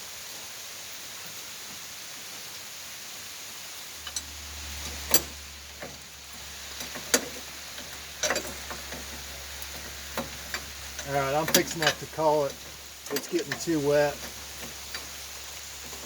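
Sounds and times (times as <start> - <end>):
rain hiss: 0.0 - 16.0
low steady rumble: 3.9 - 16.0
sharp clicks and knocks: 4.0 - 16.0.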